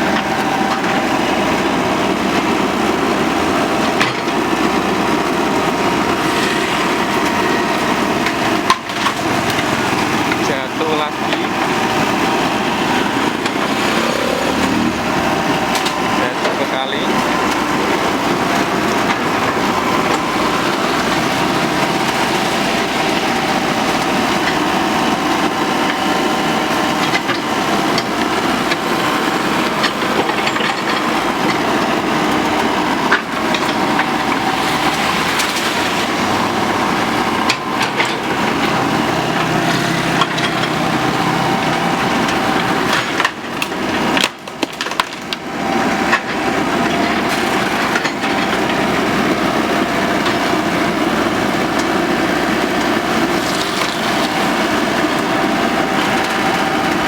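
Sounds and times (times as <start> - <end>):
excavator engine running: 0.0 - 57.0
bamboo cracking and splintering: 43.0 - 46.2, 52.8 - 55.4.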